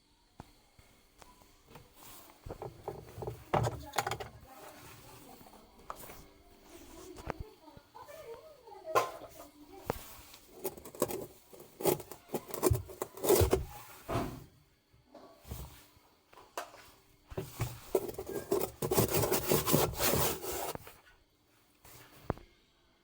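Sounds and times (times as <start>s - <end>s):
irregular scraping and rubbing: 9.9s - 14.1s, 17.4s - 21.0s.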